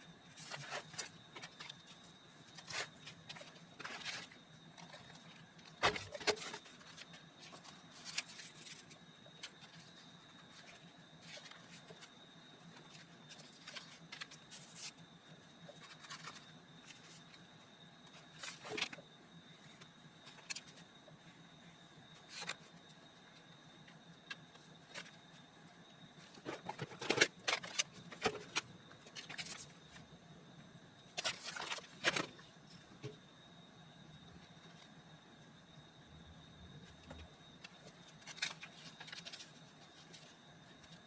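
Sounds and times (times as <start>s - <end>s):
paper rustling: 2.6s - 12.1s, 12.8s - 15.0s, 15.7s - 17.2s, 38.2s - 41.0s.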